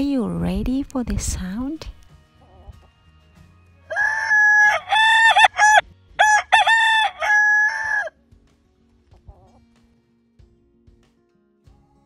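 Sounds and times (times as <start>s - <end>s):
rooster crowing: 3.9s - 8.1s.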